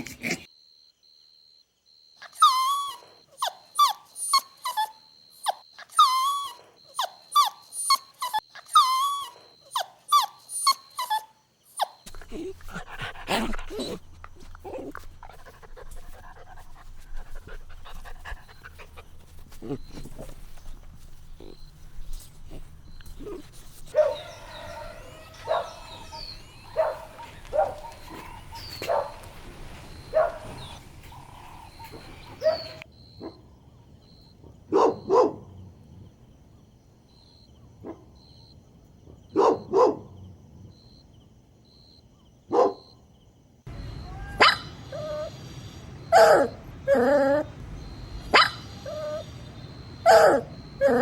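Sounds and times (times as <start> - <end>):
dogs barking and yipping: 2.2 - 32.9, 43.7 - 51.0
faint high chirping: 2.2 - 34.2, 43.7 - 51.0.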